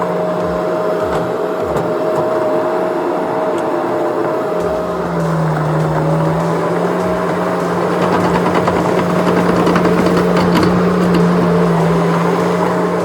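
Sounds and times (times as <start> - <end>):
skid steer engine running: 0.0 - 13.0
rapid clicking and rattling: 3.5 - 13.0.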